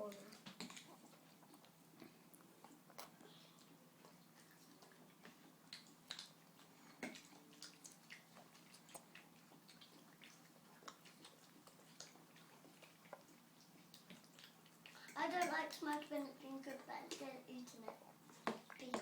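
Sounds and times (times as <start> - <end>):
baby mouth smacks and clicks: 0.1 - 1.7, 2.6 - 3.2, 5.3 - 6.4.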